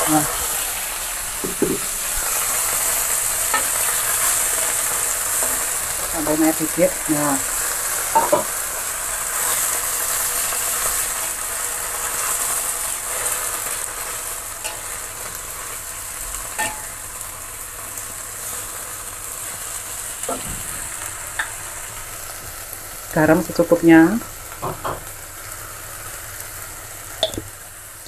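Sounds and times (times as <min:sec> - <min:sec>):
greens sizzling in a wok: 0:00.0 - 0:28.0
spatula tapping a wok: 0:01.4 - 0:01.9, 0:08.1 - 0:08.5, 0:16.6 - 0:17.0, 0:27.2 - 0:27.5.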